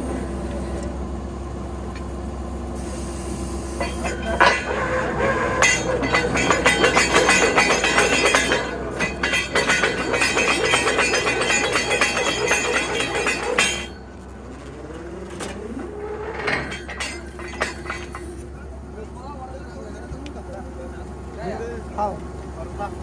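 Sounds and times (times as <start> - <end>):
engine humming: 0.0 - 23.0
metallic clattering and ringing: 3.8 - 18.6.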